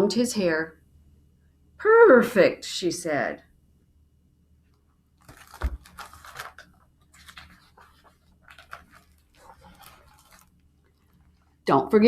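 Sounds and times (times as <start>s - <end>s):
book page turning: 5.2s - 11.6s.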